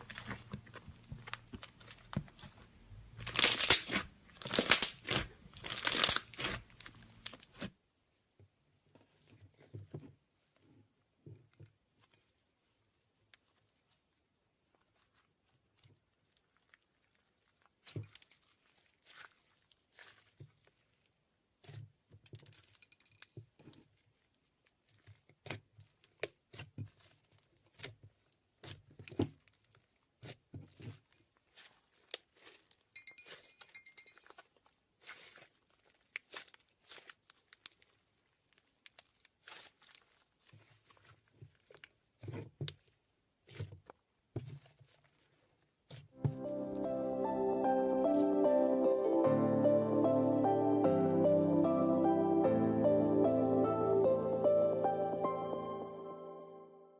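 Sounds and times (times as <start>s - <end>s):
slime squishing and crackling: 0.0s - 7.8s, 11.4s - 22.8s, 23.4s - 33.4s, 34.2s - 46.3s.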